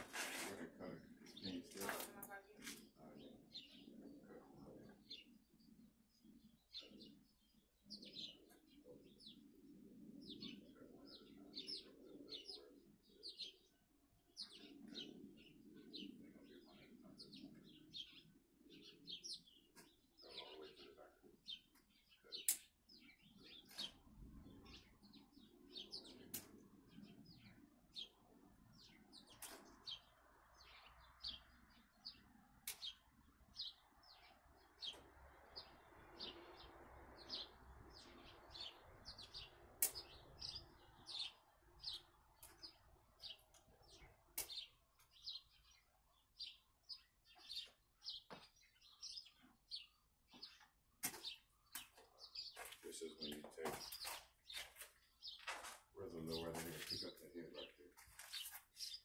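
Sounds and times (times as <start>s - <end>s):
faint birds chirping: 0.0s - 59.0s
sharp clicks: 39.8s - 40.2s.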